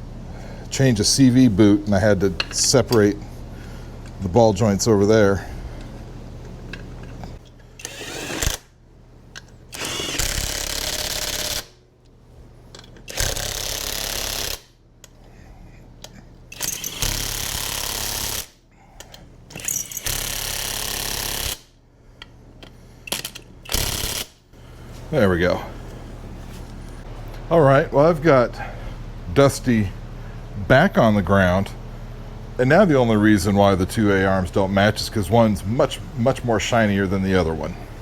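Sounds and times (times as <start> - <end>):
power tool bursts: 7.8 - 8.8, 9.7 - 11.8, 13.1 - 14.8, 16.5 - 18.6, 19.5 - 21.7, 23.1 - 24.4.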